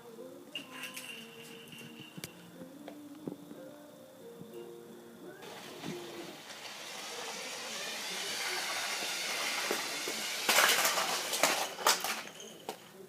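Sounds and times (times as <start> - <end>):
steady hissing: 0.0 - 13.0
harsh burst of hiss: 5.4 - 11.7.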